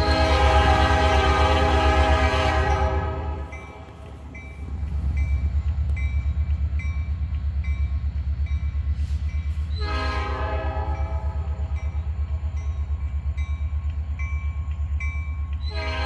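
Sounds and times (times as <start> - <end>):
locomotive horn blast: 0.0 - 3.6, 9.7 - 11.6, 15.6 - 16.0
diesel locomotive engine throbbing: 0.0 - 16.0
locomotive bell ringing: 2.6 - 9.7, 10.8 - 16.0.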